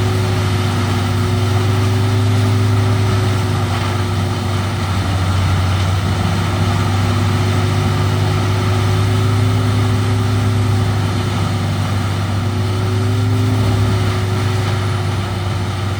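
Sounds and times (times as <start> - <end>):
wood chipper engine droning: 0.0 - 15.9.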